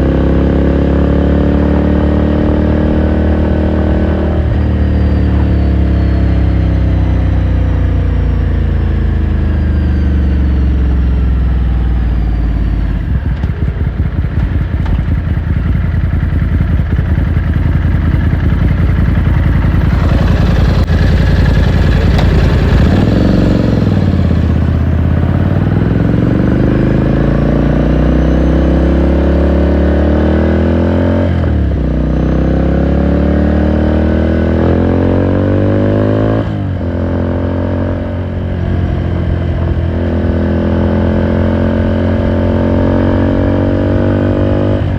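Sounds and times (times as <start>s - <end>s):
motorcycle engine shifting gears: 0.0s - 44.9s.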